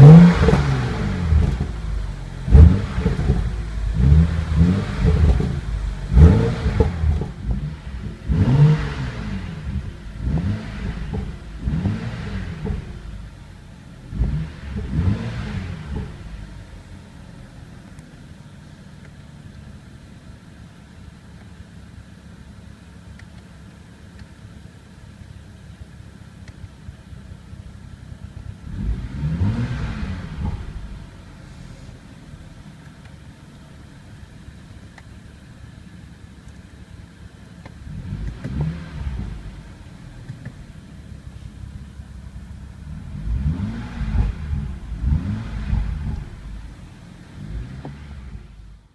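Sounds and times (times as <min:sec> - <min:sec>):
car engine idling and revving: 0:00.0 - 0:48.9.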